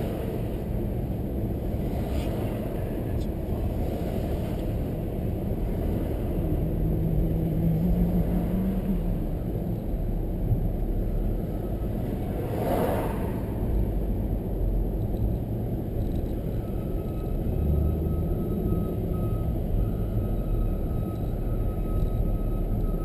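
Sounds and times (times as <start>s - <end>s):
car interior engine and tyre noise: 0.0s - 23.0s
rushing noise: 11.8s - 14.3s.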